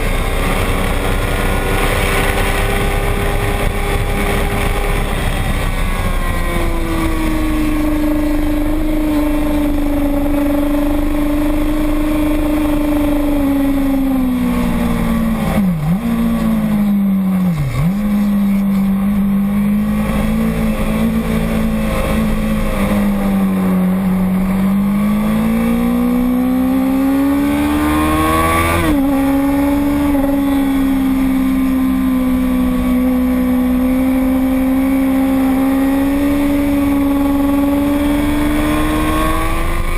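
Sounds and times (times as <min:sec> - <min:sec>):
motorcycle engine running hard: 0:00.0 - 0:39.9.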